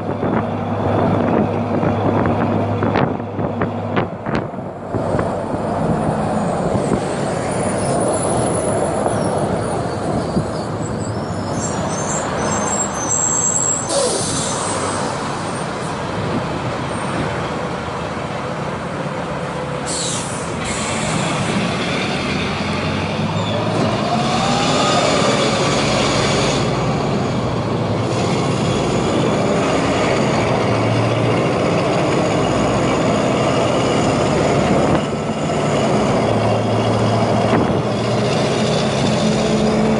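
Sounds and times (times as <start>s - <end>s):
bus diesel engine running: 0.0s - 39.9s
air brake hisses: 13.7s - 15.0s, 19.8s - 21.4s.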